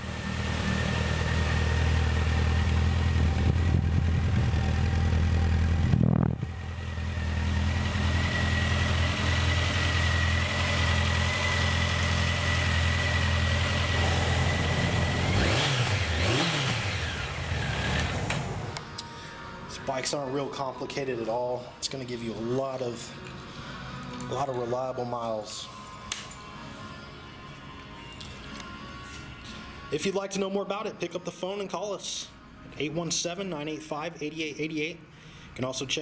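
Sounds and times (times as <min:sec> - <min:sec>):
motorcycle engine idling: 0:00.0 - 0:16.2.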